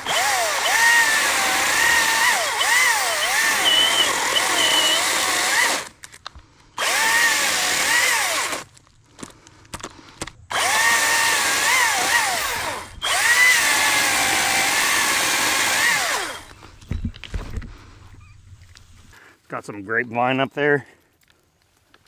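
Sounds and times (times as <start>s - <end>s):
battery chainsaw whining: 0.0s - 6.0s, 6.8s - 9.3s, 10.0s - 18.5s.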